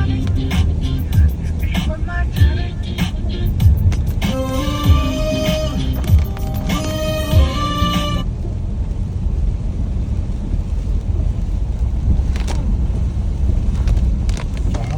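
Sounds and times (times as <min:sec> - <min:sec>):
music with a steady beat: 0:00.0 - 0:08.2
low rumble: 0:00.0 - 0:14.9.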